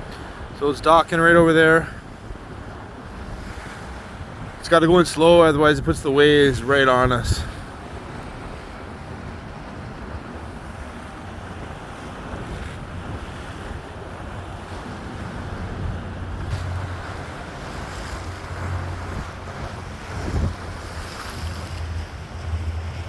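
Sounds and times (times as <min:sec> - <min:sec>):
wind on microphone: 0:02.0 - 0:23.0
steady low rumble: 0:13.7 - 0:23.0.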